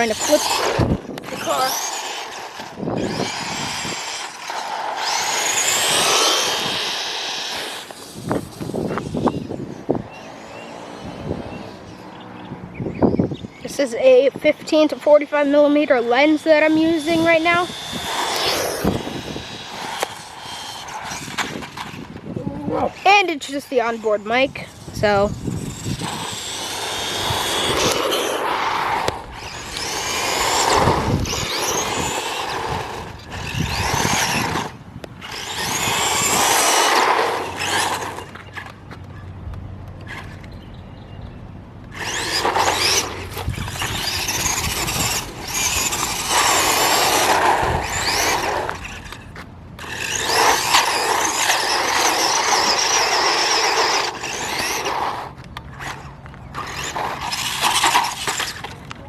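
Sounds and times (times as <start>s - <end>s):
rc car motor whine: 0.0s - 38.9s, 41.9s - 59.0s
tyre noise on ground: 16.1s - 40.7s, 41.8s - 59.0s.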